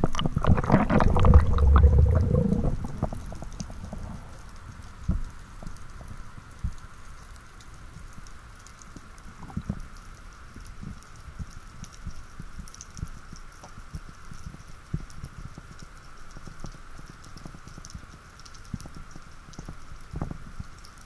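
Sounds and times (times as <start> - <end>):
faint high crackling clicks: 0.0 - 21.0
low underwater thuds: 0.4 - 5.3.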